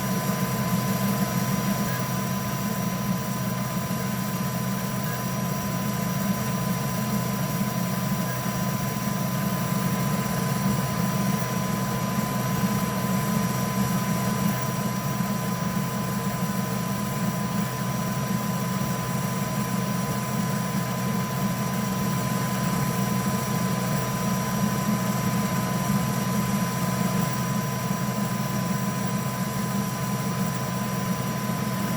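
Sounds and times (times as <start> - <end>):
motor and fan hum: 0.0 - 31.9
thin high whine: 7.8 - 31.9.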